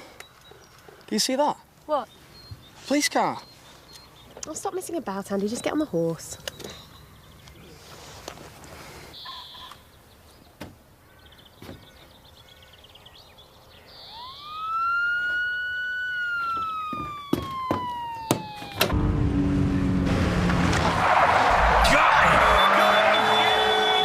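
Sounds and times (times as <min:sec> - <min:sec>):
police siren wailing: 0:14.0 - 0:24.0
rush of vehicle noise: 0:18.8 - 0:24.0.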